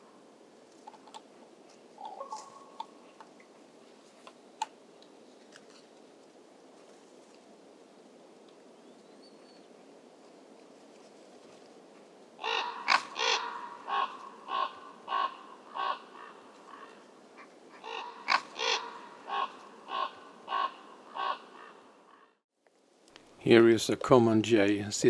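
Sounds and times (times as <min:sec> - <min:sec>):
crow cawing harshly: 0:12.4 - 0:17.0, 0:17.8 - 0:22.3.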